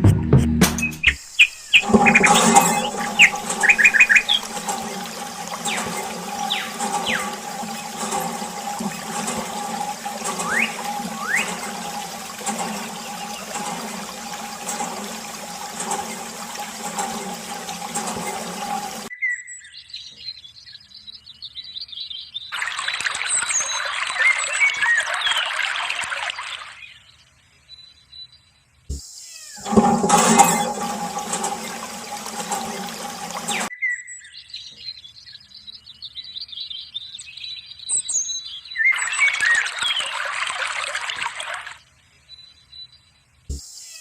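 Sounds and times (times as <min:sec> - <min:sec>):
birds chirping: 0:00.9 - 0:19.1
running water: 0:01.2 - 0:19.1, 0:29.6 - 0:33.7, 0:39.0 - 0:41.8
electric water pump humming: 0:01.3 - 0:19.1, 0:29.6 - 0:33.7
water splashing: 0:01.5 - 0:19.1, 0:29.6 - 0:33.7.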